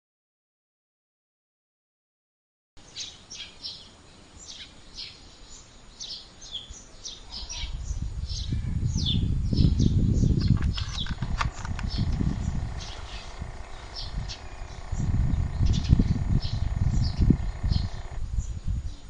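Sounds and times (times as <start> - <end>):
birds chirping: 2.8 - 19.0
quick run of clicks: 10.4 - 18.2
short falling bird calls: 10.4 - 18.2
low rumble: 11.2 - 18.5.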